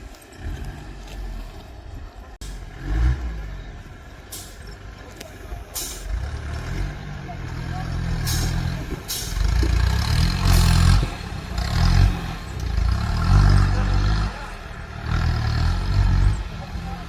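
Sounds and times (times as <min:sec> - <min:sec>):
clattering over rough ground: 0:00.0 - 0:02.7, 0:03.6 - 0:15.0
car engine revving: 0:02.4 - 0:04.0, 0:06.1 - 0:17.0.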